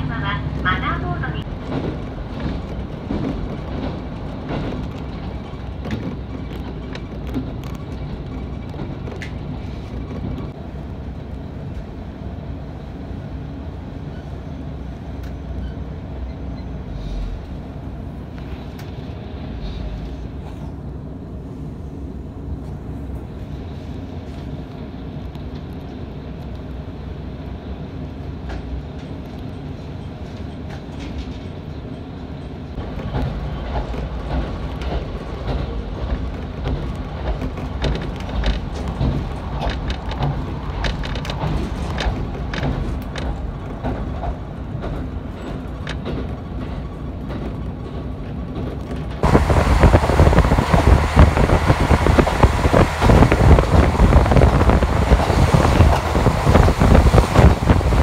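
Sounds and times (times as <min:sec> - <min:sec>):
diesel railcar engine hum: 0:00.0 - 0:58.0
wheel clicks over rail joints: 0:01.4 - 0:10.6, 0:28.4 - 0:58.0.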